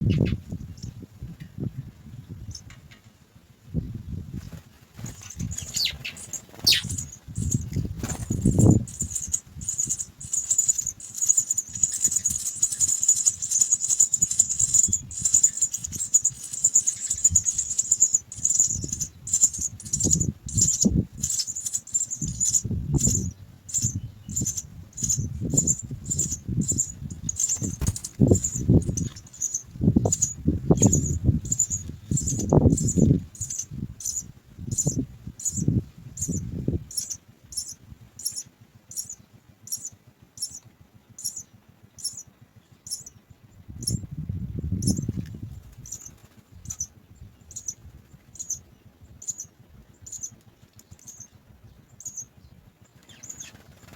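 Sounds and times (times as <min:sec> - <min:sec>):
nestlings begging calls: 0:00.0 - 0:00.9, 0:04.4 - 0:40.6, 0:41.2 - 0:43.2, 0:43.8 - 0:44.1, 0:44.7 - 0:52.4, 0:53.0 - 0:53.9
low rustling buffeting: 0:03.8 - 0:38.3.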